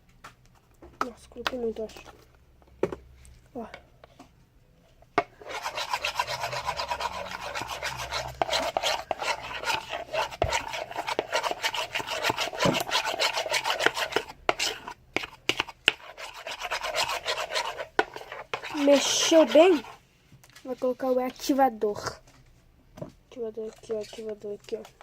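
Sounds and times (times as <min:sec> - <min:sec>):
spoon stirring slime in bowl: 0:05.2 - 0:20.0.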